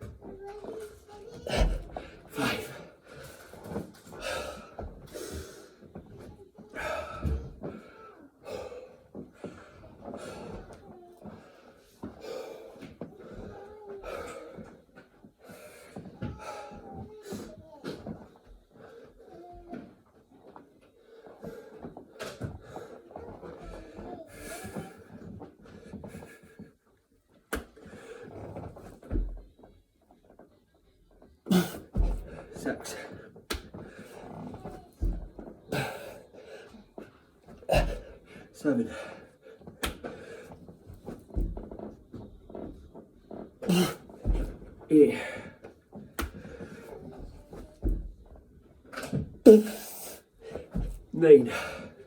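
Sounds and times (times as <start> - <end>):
man breathing heavily: 1.5 - 5.9, 6.8 - 10.7, 12.0 - 14.8, 31.5 - 41.6, 43.6 - 47.4, 49.4 - 52.0.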